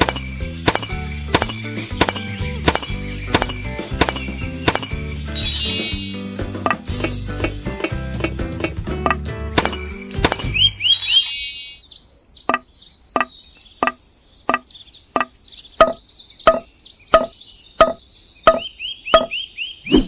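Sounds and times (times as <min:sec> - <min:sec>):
evenly spaced knocking: 0:00.0 - 0:10.8
high rapid chirping: 0:00.0 - 0:11.8.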